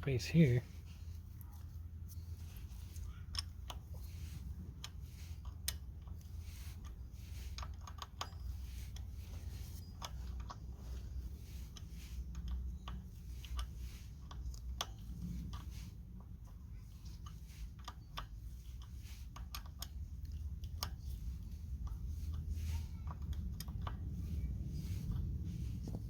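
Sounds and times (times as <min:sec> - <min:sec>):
steady low hum: 0:00.0 - 0:26.0
metal parts clicking and tapping: 0:01.4 - 0:26.0.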